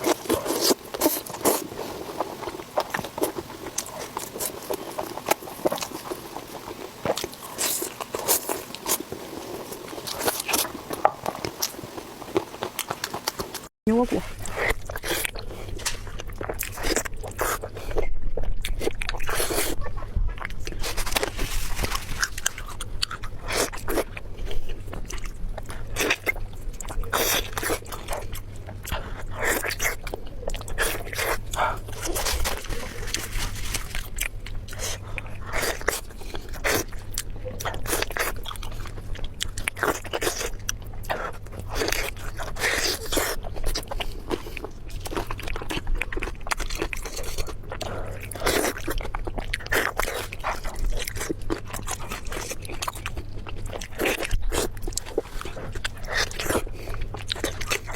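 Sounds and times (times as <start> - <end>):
crunchy chewing of food: 0.0 - 57.9.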